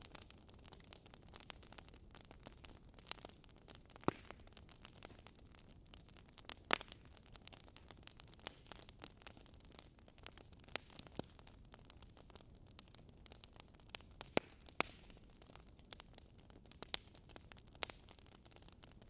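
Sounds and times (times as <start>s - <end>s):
soft fire hiss: 0.0s - 19.0s
wood fire crackling: 0.0s - 19.0s
sharp pops and snaps: 3.9s - 5.4s, 14.0s - 15.3s.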